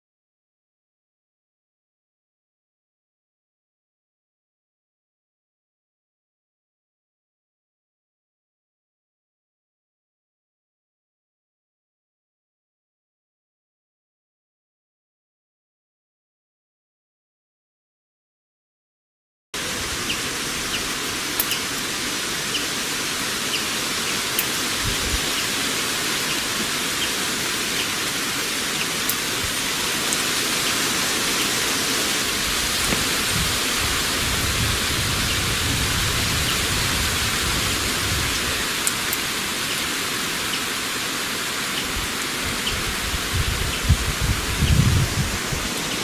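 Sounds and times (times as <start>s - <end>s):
heavy rain: 19.6s - 46.0s.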